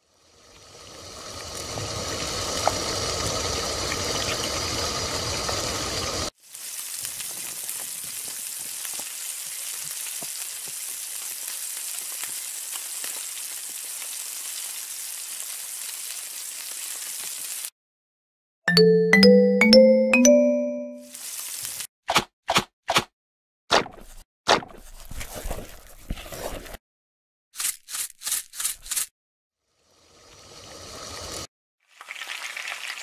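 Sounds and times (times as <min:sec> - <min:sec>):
vegetables frying with crackles: 0:00.1 - 0:17.7, 0:21.1 - 0:21.9, 0:30.6 - 0:33.0
butter sizzling in a pan: 0:00.5 - 0:17.7, 0:21.1 - 0:21.9, 0:31.9 - 0:33.0.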